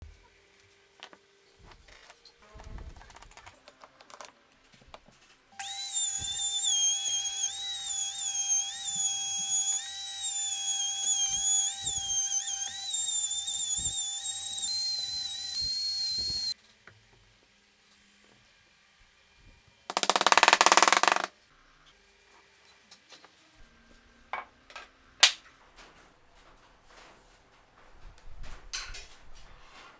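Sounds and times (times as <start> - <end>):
electric power tool whining: 5.6 - 16.6
harsh noisy burst: 5.6 - 16.6.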